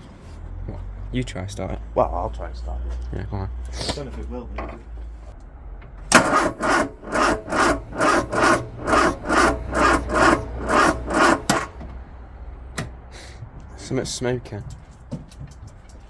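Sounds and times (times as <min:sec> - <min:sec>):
starter motor cranking slowly: 0:06.1 - 0:12.0.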